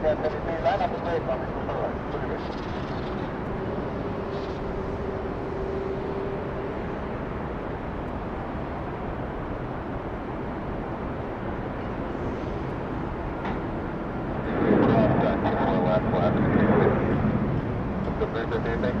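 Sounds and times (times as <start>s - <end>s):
faint whine: 0.0s - 19.0s
jet engines rumbling: 0.0s - 19.0s.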